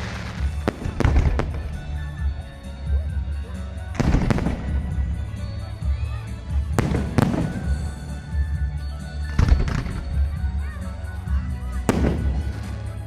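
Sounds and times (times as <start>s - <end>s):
fireworks bangs: 0.0s - 3.0s, 3.9s - 5.9s, 6.6s - 8.7s, 9.3s - 10.4s, 11.9s - 13.0s
fireworks bursting: 0.0s - 10.5s, 11.8s - 13.0s
music playing: 0.0s - 13.0s.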